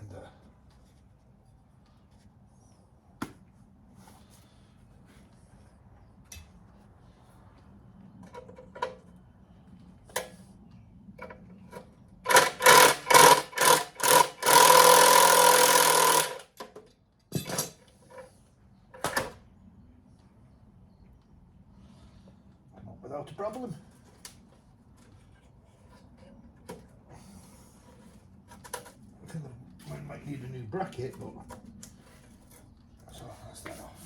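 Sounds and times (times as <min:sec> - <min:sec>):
power tool motor whine: 0:12.3 - 0:16.4.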